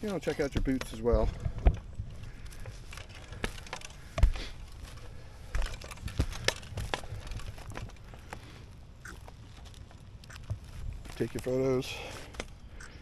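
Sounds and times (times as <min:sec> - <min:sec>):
knocks and scuffs on a roof: 0:00.1 - 0:08.6.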